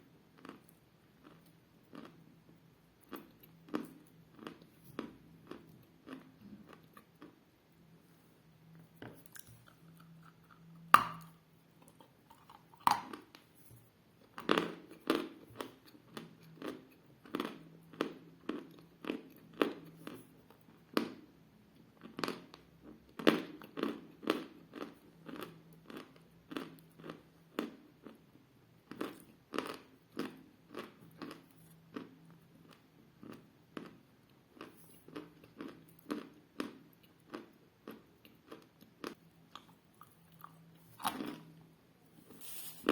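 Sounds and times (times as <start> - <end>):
faint low hum: 0.0 - 42.9
crunchy chewing: 0.4 - 2.2, 3.0 - 7.4, 8.7 - 13.7, 34.6 - 41.5.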